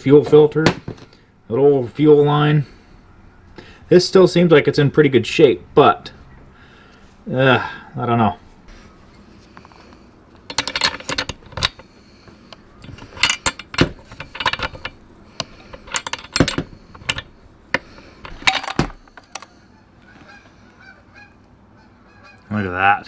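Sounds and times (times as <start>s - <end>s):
metallic clicks and scrapes of tools: 9.5s - 19.6s.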